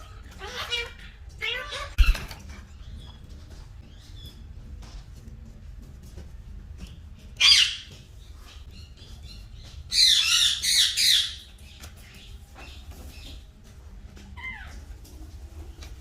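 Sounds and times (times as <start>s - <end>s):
parrot screeching: 0.2s - 2.0s, 7.4s - 7.9s.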